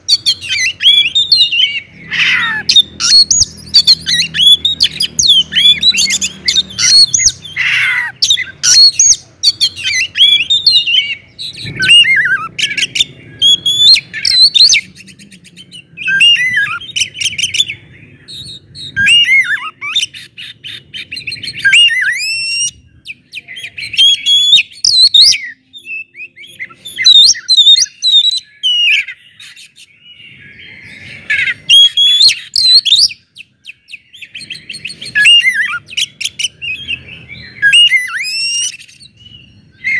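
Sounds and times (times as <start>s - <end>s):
bird singing whistles: 0.0s - 39.9s.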